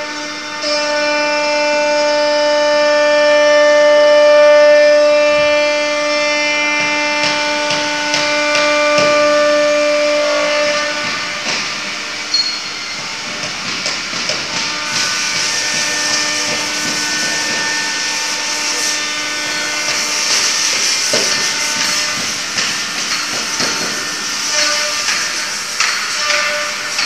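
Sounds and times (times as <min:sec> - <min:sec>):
router spindle whine: 0:00.0 - 0:27.0
bit cutting wood hiss: 0:14.8 - 0:27.0.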